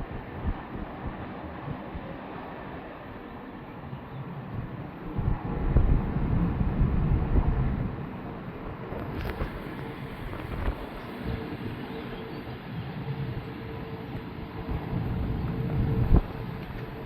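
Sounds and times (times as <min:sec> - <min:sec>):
jet engines rumbling: 0:00.0 - 0:17.0
wind buffeting microphone: 0:00.0 - 0:17.0.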